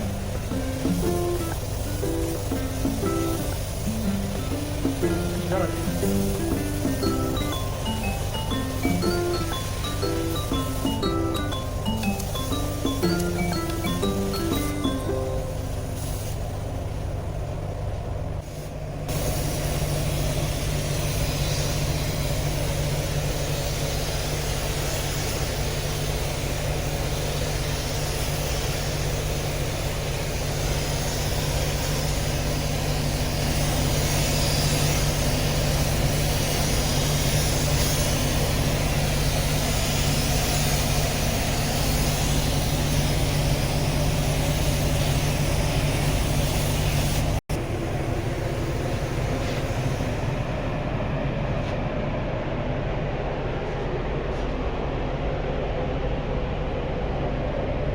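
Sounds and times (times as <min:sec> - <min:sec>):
constant hiss: 0:00.0 - 0:17.2.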